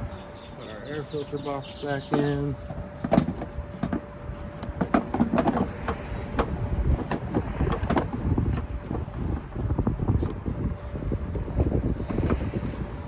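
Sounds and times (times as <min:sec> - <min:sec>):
hard plastic clicking and clunking: 0:02.1 - 0:09.4.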